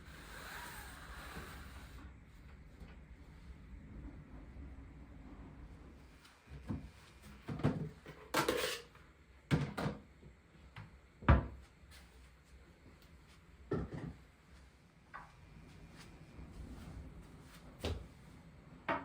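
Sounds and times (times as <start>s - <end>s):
kitchen knocks and clunks: 6.6s - 8.8s, 9.5s - 10.1s, 11.2s - 11.6s, 13.7s - 14.2s.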